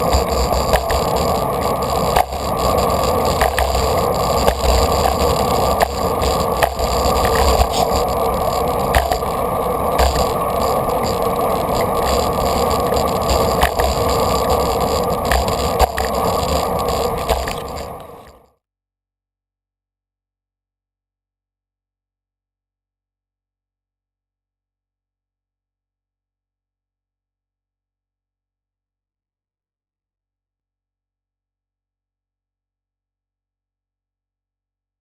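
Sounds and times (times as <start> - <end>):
bicycle tyre rumble: 0.0 - 18.4.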